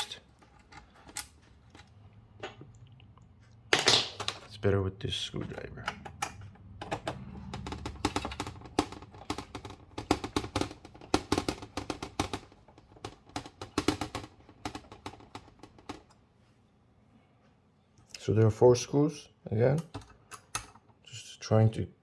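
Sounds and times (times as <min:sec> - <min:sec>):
handling rumble: 0:05.4 - 0:11.0.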